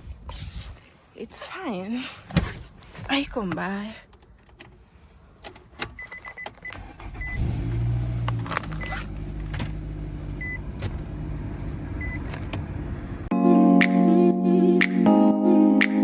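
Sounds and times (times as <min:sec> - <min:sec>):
car engine starting and idling: 0:05.8 - 0:13.3.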